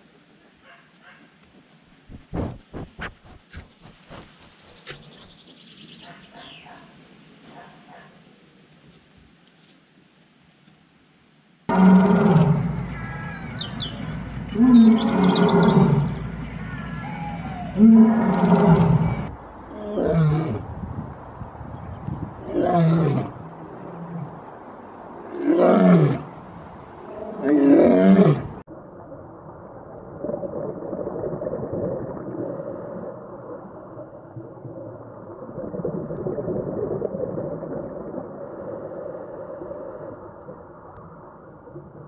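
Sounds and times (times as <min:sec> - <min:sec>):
lion roaring: 0:11.7 - 0:13.0, 0:14.6 - 0:16.2, 0:17.2 - 0:20.6, 0:22.4 - 0:24.3, 0:27.1 - 0:28.6
dull underwater hiss: 0:29.8 - 0:41.4.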